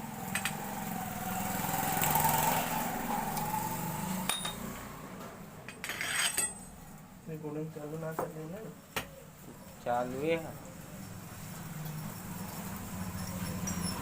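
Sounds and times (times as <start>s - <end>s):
vehicle engine passing by: 0.0s - 5.5s, 10.0s - 14.0s.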